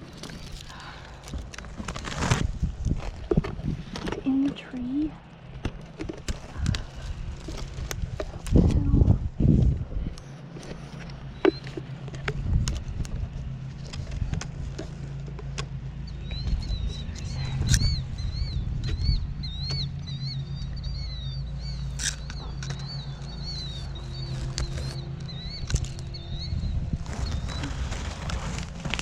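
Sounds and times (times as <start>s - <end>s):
steady low hum: 0.0s - 29.0s
small bird high chirps: 16.0s - 28.1s.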